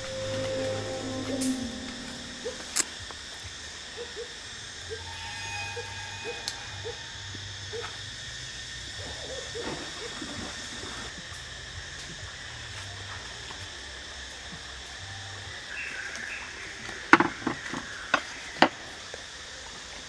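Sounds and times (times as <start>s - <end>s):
bird hooting: 0.0s - 2.9s.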